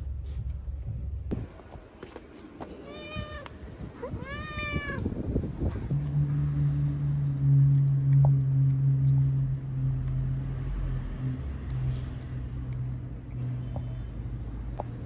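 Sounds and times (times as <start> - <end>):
steady low drone: 0.0 - 1.6
cat meowing: 2.8 - 5.0.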